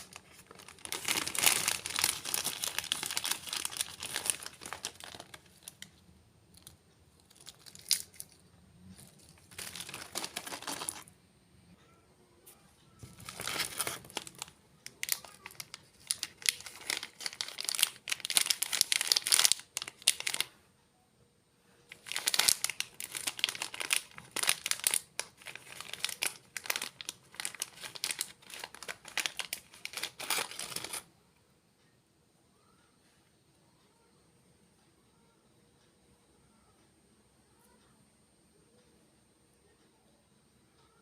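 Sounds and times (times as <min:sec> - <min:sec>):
plastic packet crinkling: 0:00.0 - 0:06.0, 0:06.6 - 0:11.1, 0:13.0 - 0:20.5, 0:21.9 - 0:31.1.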